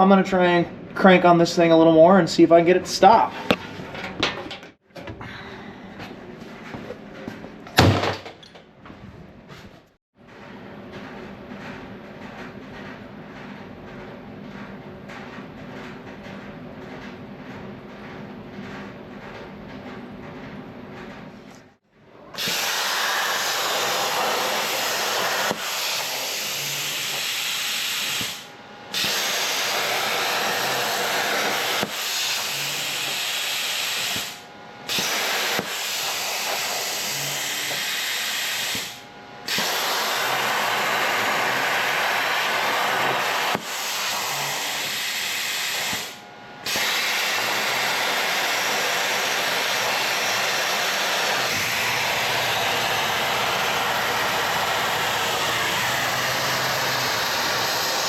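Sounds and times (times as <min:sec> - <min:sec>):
shop tool hissing: 0:22.4 - 0:58.0.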